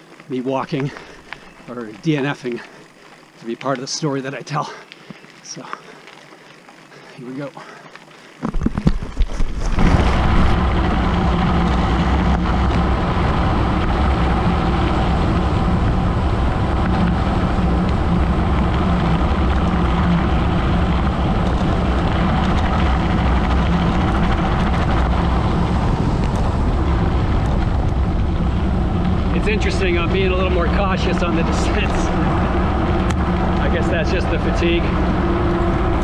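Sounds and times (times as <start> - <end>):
bike tyres rolling on gravel: 0.0 - 36.0
wind on microphone: 8.4 - 36.0.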